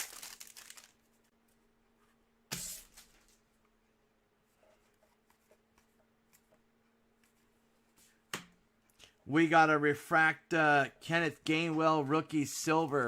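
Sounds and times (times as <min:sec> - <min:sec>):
cards and wrappers handled: 0:00.0 - 0:01.1.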